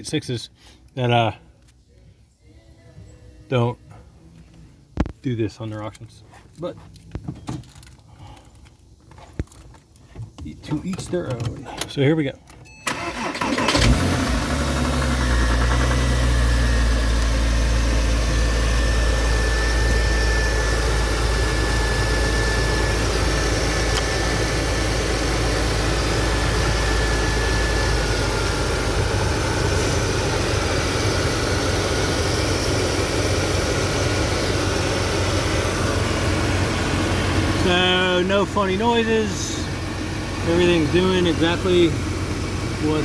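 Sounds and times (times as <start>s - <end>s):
car engine idling: 12.8s - 43.0s.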